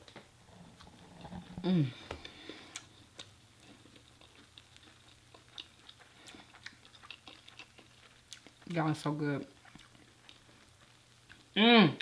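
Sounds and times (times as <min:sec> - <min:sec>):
chewing food wet mouth clicks: 0:02.7 - 0:08.8, 0:09.5 - 0:11.5.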